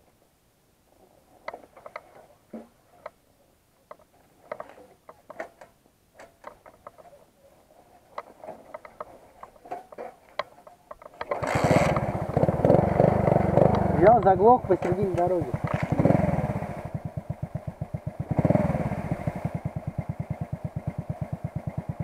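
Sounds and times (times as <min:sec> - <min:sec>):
motorcycle engine running: 0:11.4 - 0:22.0.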